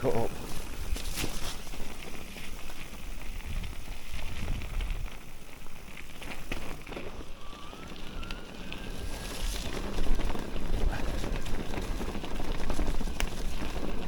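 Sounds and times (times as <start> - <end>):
tyres crunching over stony trail: 0.0 - 14.0
wind rumbling on microphone: 0.0 - 14.0
faint rising whine: 5.4 - 12.3.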